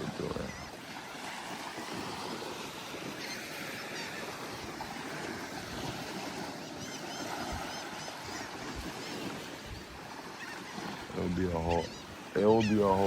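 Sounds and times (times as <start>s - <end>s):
surf washing on beach: 0.0s - 13.0s
wind: 0.0s - 13.0s.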